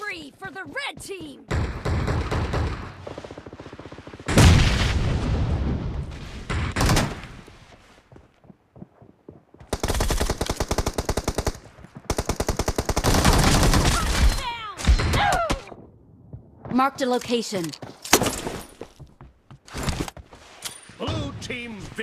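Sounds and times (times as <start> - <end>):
video game automatic gunfire: 9.7 - 14.0.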